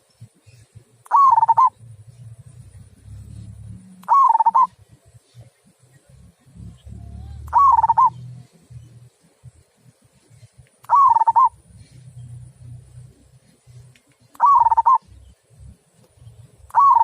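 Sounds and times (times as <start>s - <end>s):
dove cooing: 1.0s - 2.0s, 2.6s - 4.8s, 6.5s - 9.0s, 10.9s - 12.8s, 14.4s - 15.1s, 16.7s - 17.0s.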